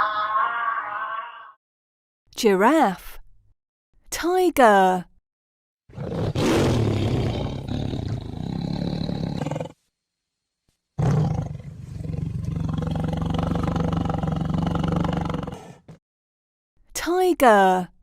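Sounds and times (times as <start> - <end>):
tiger roaring: 5.9 - 9.8, 11.0 - 16.0.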